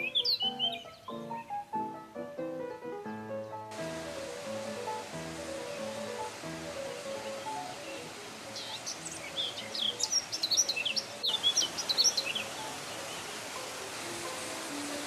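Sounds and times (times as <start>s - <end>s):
songbird twittering: 0.0s - 1.9s, 2.6s - 15.0s
waterfall rushing: 3.7s - 15.0s.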